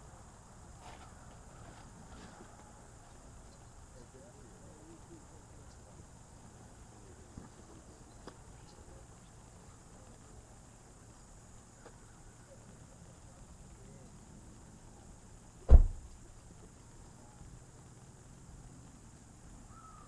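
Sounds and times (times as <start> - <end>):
loud low thump: 15.7 - 16.2.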